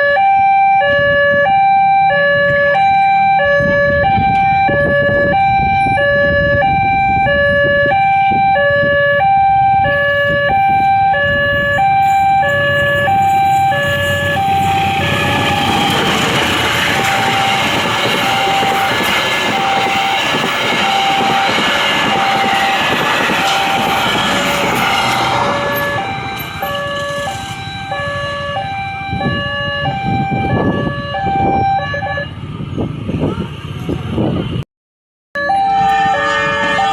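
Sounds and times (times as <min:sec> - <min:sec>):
level crossing alarm two tones: 0:00.0 - 0:32.3, 0:35.4 - 0:36.9
train passing on rails: 0:06.4 - 0:29.3.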